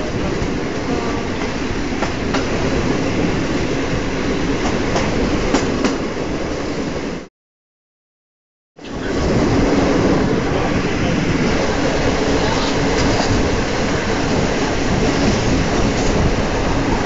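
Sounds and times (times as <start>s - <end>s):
train wheels rumbling on rail: 0.0s - 7.3s, 8.8s - 17.0s.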